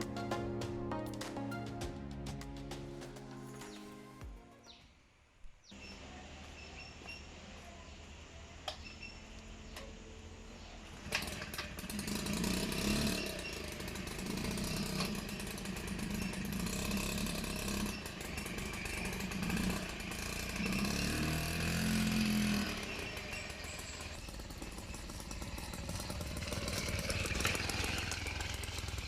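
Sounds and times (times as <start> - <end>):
two-stroke engine starting and revving: 10.8 - 29.0.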